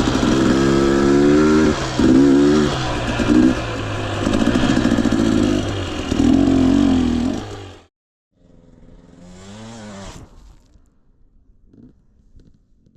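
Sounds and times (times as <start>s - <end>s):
dirt bike two-stroke engine revving: 0.0s - 7.9s, 8.6s - 10.2s.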